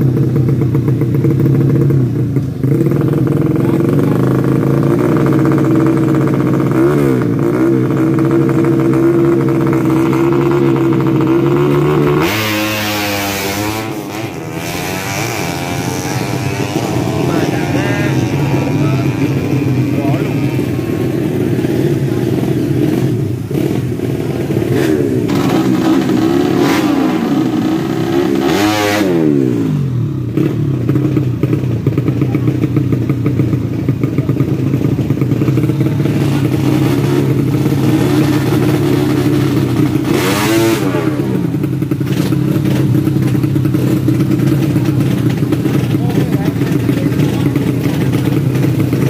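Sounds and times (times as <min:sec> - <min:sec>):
motorcycle engines running: 0:00.0 - 0:49.0
engine revving and dropping: 0:11.6 - 0:20.6, 0:24.7 - 0:29.8, 0:40.0 - 0:41.5.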